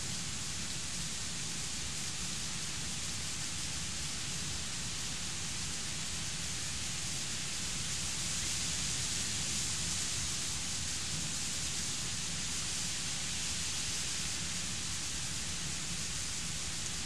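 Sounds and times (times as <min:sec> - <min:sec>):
heavy rain downpour: 0:00.0 - 0:17.0.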